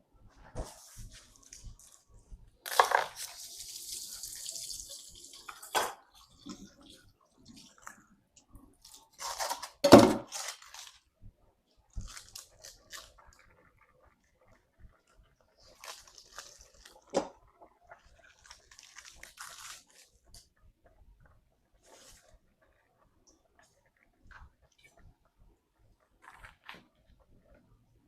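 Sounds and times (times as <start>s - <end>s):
running water: 1.4s - 9.2s
dishes clattering: 5.4s - 6.8s.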